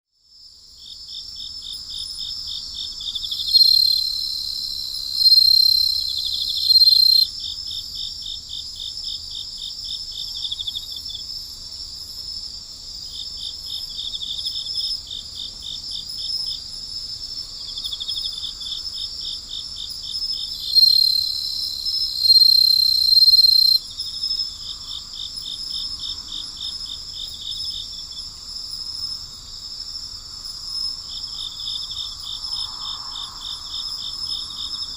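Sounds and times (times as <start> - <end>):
rapid pulsing insect chirps: 0.8 - 34.9
piercing insect trill: 1.8 - 7.3, 16.2 - 34.9
insects high shrill drone: 3.3 - 7.3, 20.5 - 23.8.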